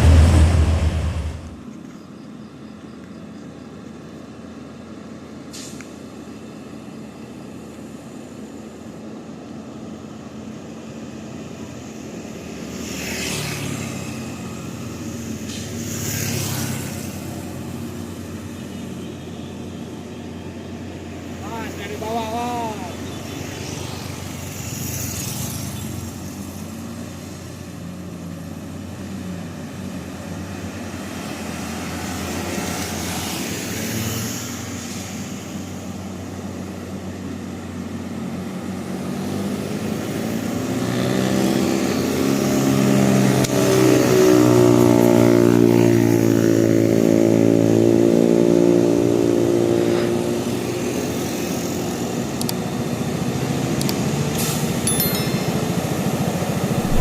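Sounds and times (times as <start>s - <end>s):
truck diesel engine labouring: 0.0s - 1.6s.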